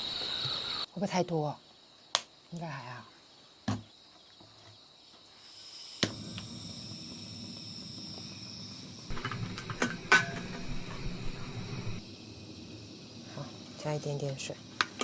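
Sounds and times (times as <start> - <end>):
food sizzling in pot: 0.0 - 0.9, 5.3 - 15.0
crickets chirping faintly: 0.0 - 15.0.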